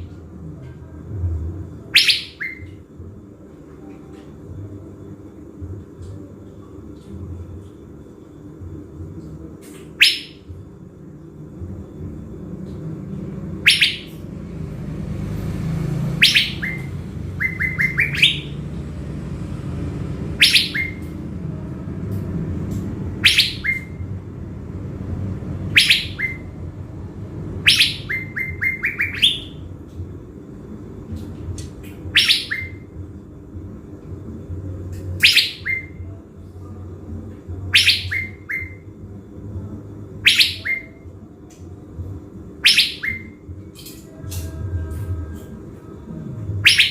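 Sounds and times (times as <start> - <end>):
steady low rumble: 0.0 - 2.0, 2.6 - 46.7
songbird singing: 1.7 - 3.2, 9.6 - 10.5, 11.8 - 21.3, 22.1 - 24.2, 24.9 - 29.9, 31.1 - 33.1, 34.3 - 45.5, 46.5 - 46.9.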